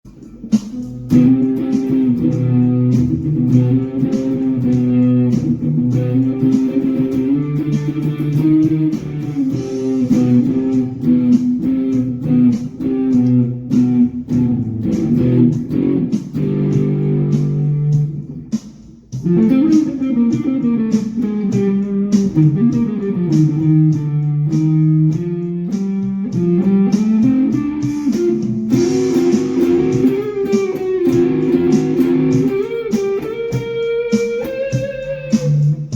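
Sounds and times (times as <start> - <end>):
plucked guitar melody: 0.1 - 35.9.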